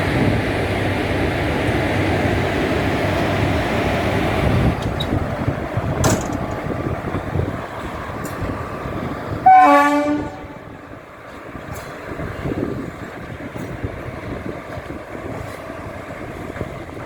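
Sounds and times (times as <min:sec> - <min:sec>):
locomotive rumbling along track: 0:00.0 - 0:17.0
locomotive horn blast: 0:09.4 - 0:10.8.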